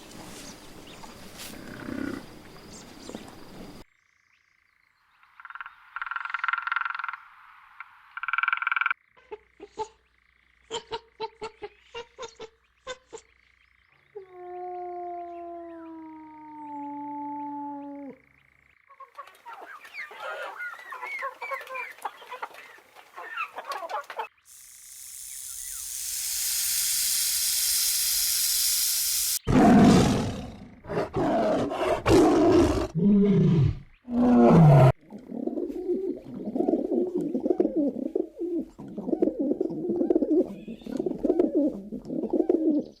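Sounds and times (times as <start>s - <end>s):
fast chattering calls: 18.9s - 29.4s
steady rising hiss: 24.5s - 29.5s.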